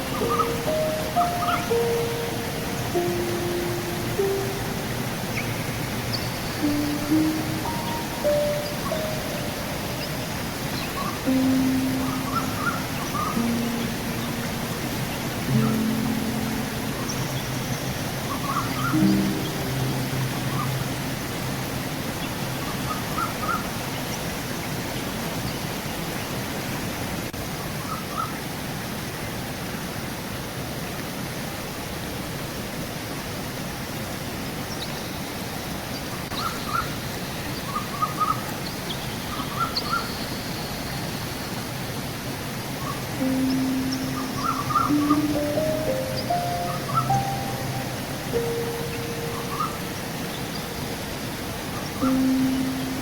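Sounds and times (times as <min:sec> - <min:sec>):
low musical tone: 0:00.0 - 0:23.1, 0:43.0 - 0:53.0
small birds chirping: 0:00.0 - 0:24.3, 0:42.8 - 0:53.0
river water rushing: 0:00.0 - 0:34.7, 0:35.8 - 0:53.0.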